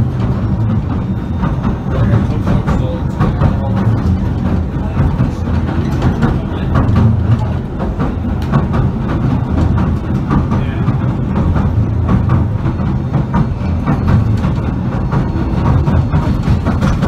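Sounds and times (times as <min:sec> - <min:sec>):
train low rumble: 0:00.0 - 0:17.0
wheels clicking over rail joints: 0:00.0 - 0:17.0.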